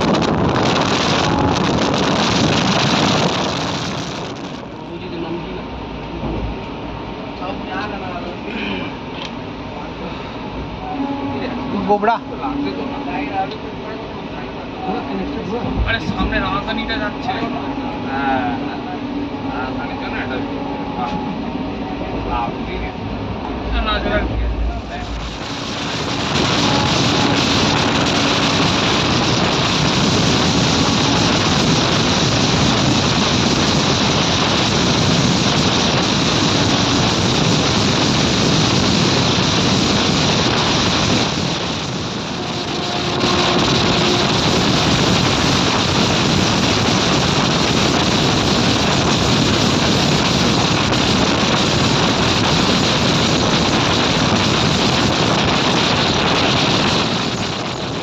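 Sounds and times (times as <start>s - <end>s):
wind on microphone: 0.0s - 4.8s, 23.1s - 58.0s
passenger train rumbling: 0.0s - 58.0s.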